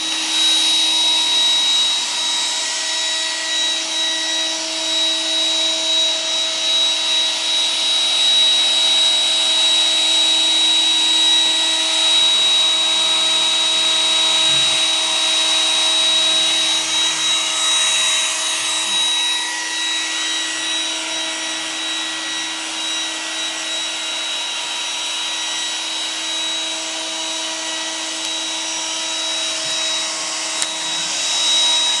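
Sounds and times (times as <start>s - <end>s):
robot vacuum motor whine: 0.0s - 32.0s
suction and brushes hiss: 8.6s - 32.0s.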